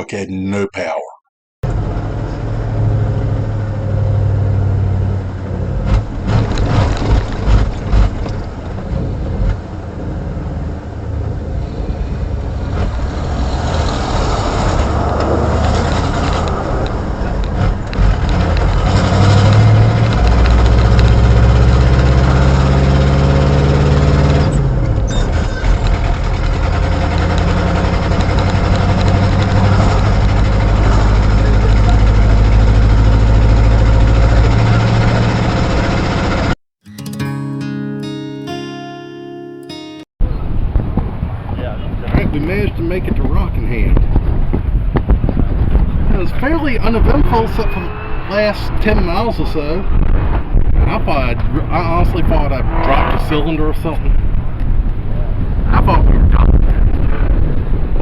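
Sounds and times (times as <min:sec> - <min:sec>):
pickup truck engine with exhaust leak: 0:11.4 - 0:36.5.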